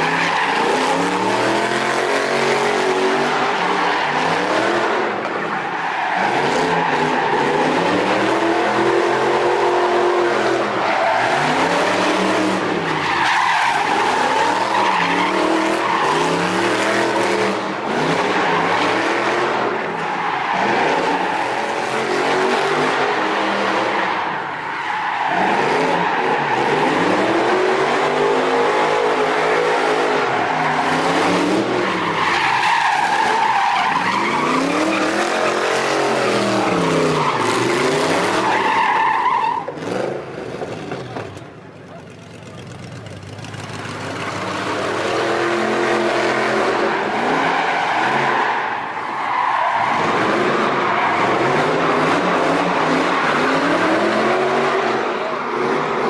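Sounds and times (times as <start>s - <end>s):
car engine revving: 0.0s - 41.0s, 43.2s - 56.0s.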